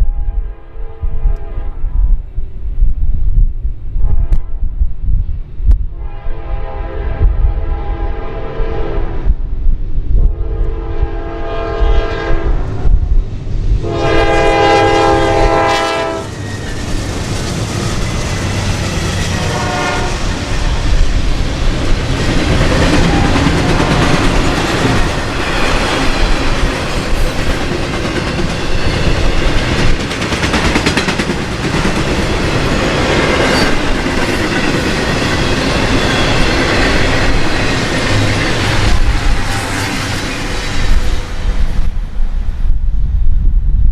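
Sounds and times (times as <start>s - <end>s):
train wheels rumbling: 0.0s - 43.1s
locomotive horn blasts: 6.0s - 9.1s, 10.3s - 12.6s, 13.8s - 16.3s, 19.3s - 20.4s
rail-joint clickety-clack: 15.4s - 42.0s.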